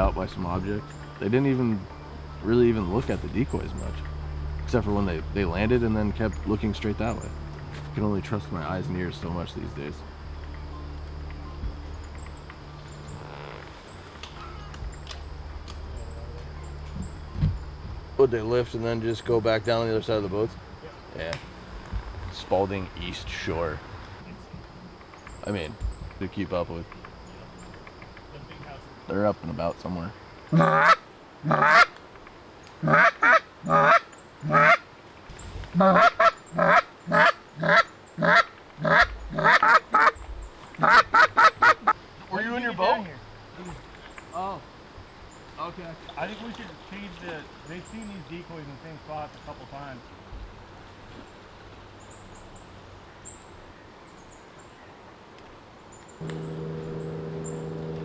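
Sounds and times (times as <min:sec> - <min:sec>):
steady low hum: 0:00.0 - 0:30.8, 0:56.2 - 0:58.0
small birds chirping: 0:00.0 - 0:55.0, 0:55.9 - 0:58.0
goose honking: 0:30.5 - 0:31.9, 0:32.8 - 0:34.8, 0:35.7 - 0:40.2, 0:40.8 - 0:42.4.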